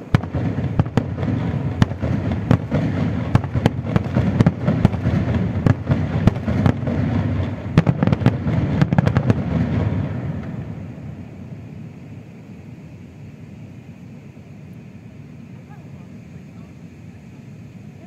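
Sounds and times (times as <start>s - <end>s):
firework shells bursting: 0.0s - 12.3s
steady low rumble: 0.0s - 18.0s.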